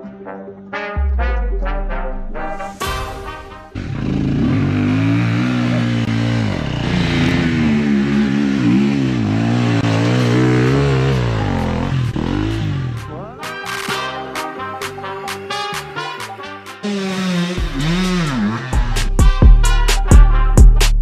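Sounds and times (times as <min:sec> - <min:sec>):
motorcycle engine revving: 0:03.6 - 0:13.2, 0:16.8 - 0:19.4.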